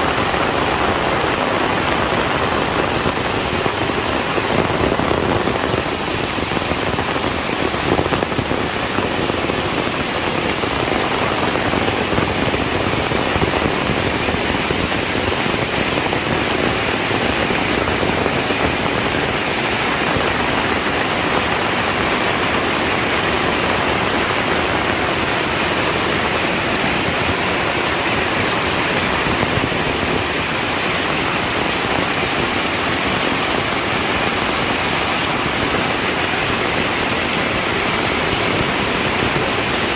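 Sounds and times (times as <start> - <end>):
heavy rain on a surface: 0.0 - 39.9.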